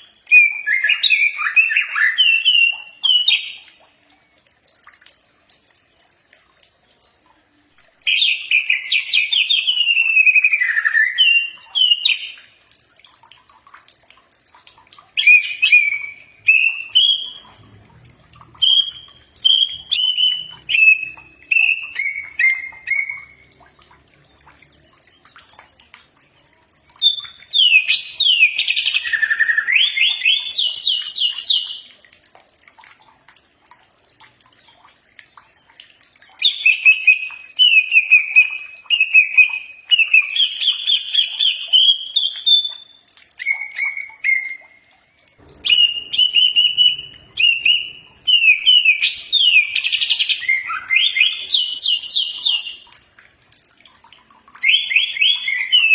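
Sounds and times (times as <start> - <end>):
bird singing whistled phrases: 0.3 - 3.7, 8.1 - 12.4, 15.2 - 17.5, 18.6 - 23.4, 27.0 - 31.9, 36.4 - 44.8, 45.5 - 52.9, 54.6 - 55.9.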